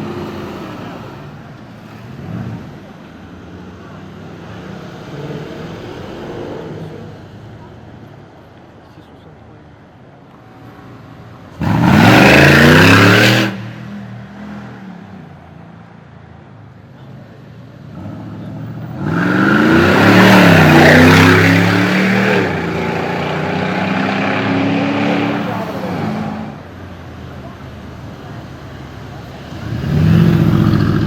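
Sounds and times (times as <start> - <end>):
car engine revving hard: 11.6 - 13.8, 18.0 - 26.6, 29.5 - 31.0.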